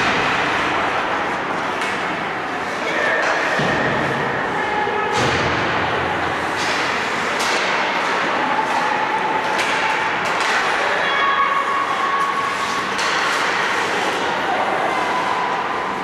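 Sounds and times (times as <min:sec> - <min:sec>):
hockey sticks and puck knocks: 0:00.0 - 0:04.3, 0:05.1 - 0:11.0, 0:12.5 - 0:14.3
skates on ice: 0:06.1 - 0:16.0.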